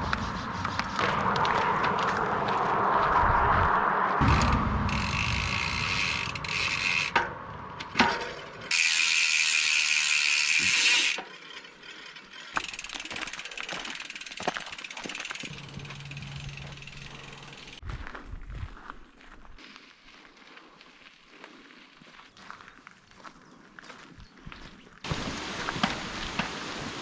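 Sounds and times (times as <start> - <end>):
bike freehub buzzing: 4.2 - 17.8
bike rattles and ticks: 4.2 - 18.0, 25.1 - 26.6.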